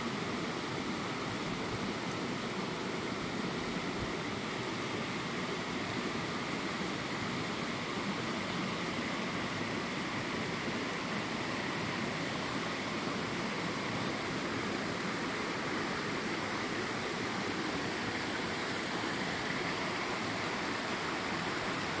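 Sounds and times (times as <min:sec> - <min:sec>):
creek waterfall rushing: 0:00.0 - 0:22.0.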